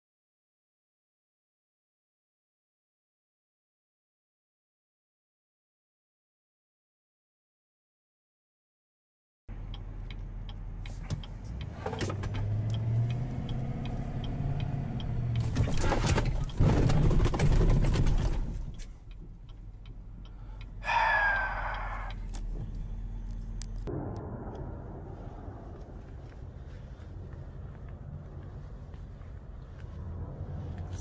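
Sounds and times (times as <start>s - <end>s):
car engine and road noise: 9.5s - 31.0s.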